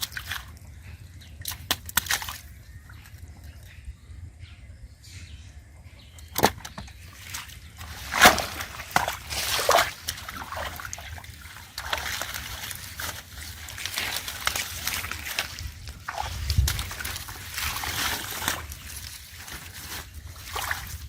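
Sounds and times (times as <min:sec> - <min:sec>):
hands splashing in water: 0:01.4 - 0:02.5, 0:06.4 - 0:21.0
water trickling: 0:07.6 - 0:21.0.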